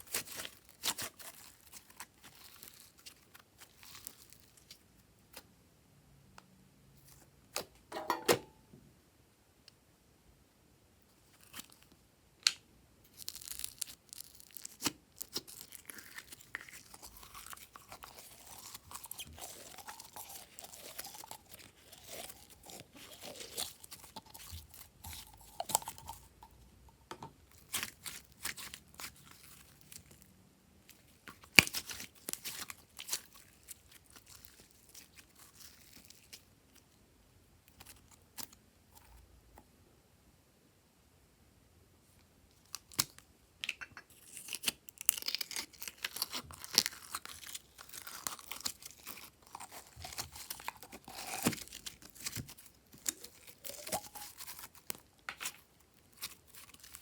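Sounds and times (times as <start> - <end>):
slime stretched and squeezed by hand: 0.0 - 5.4, 13.1 - 26.6, 27.5 - 36.9, 44.1 - 57.0.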